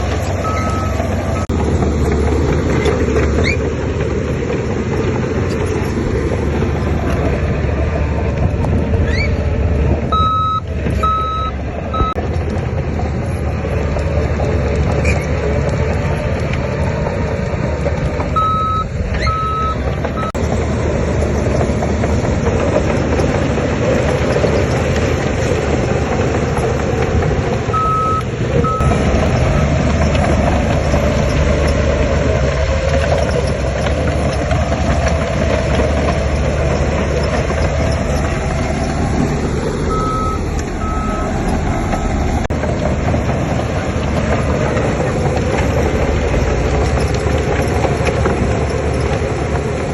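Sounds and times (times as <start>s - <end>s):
diesel engine running: 0.0s - 49.9s
reversing alarm beeping: 0.4s - 1.5s, 10.1s - 12.2s, 18.4s - 20.4s, 27.8s - 29.8s, 39.9s - 42.2s.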